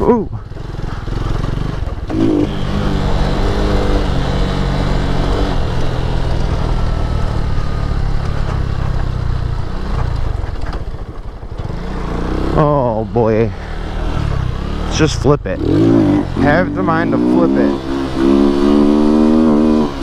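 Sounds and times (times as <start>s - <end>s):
motorcycle engine under throttle: 0.0s - 20.0s.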